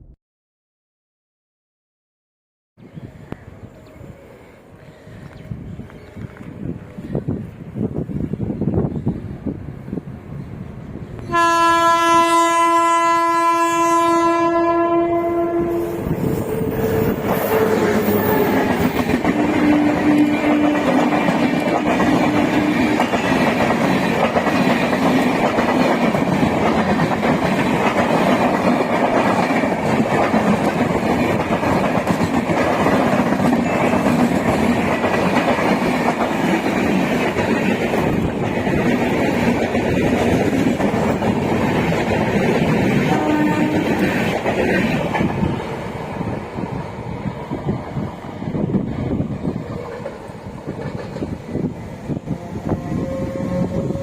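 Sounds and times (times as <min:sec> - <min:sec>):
train rumble and clatter on rails: 0:02.9 - 0:54.0
train horn blast: 0:11.2 - 0:18.7, 0:19.3 - 0:21.2, 0:43.0 - 0:44.2, 0:52.3 - 0:54.0.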